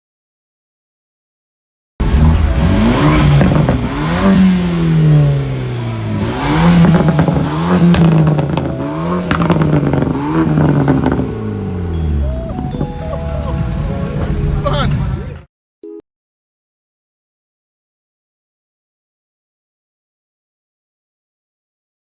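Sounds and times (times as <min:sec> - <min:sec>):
car engine revving: 0:02.0 - 0:15.4.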